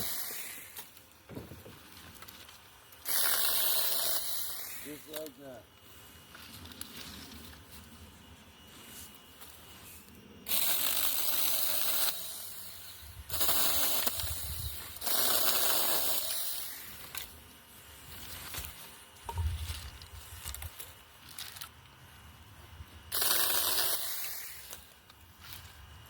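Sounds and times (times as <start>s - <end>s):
mini chainsaw cutting branches: 0.0s - 7.8s, 8.9s - 17.4s, 23.0s - 25.8s.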